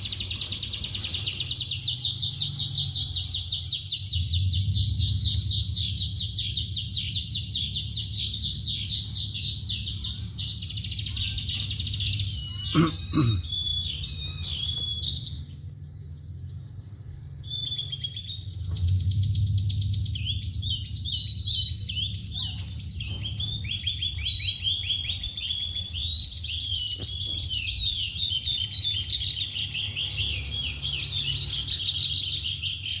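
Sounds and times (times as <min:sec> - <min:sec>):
bird singing chirps and trills: 0:00.0 - 0:33.0
low hum: 0:02.3 - 0:13.4, 0:16.0 - 0:24.2.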